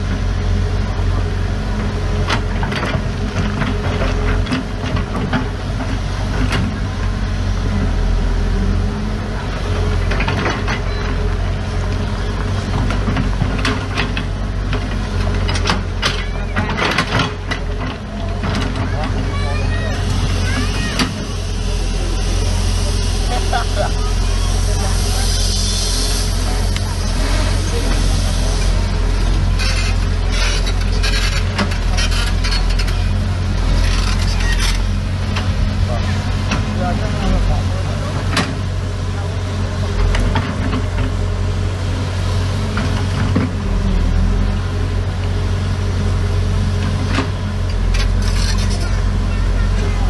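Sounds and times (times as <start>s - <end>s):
diesel construction machinery running: 0.0s - 50.0s.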